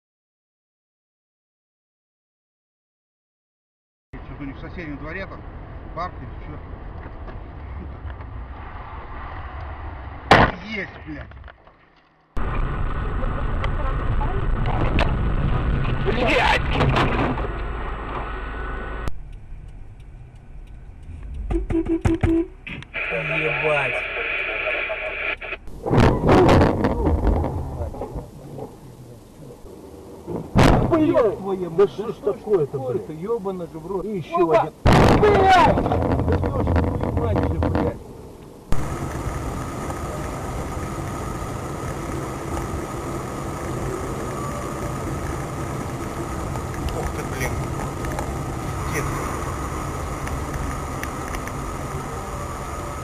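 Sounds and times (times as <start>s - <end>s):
car engine and road noise: 4.2s - 53.0s
short even beeps: 21.5s - 22.5s
car engine running: 38.7s - 53.0s.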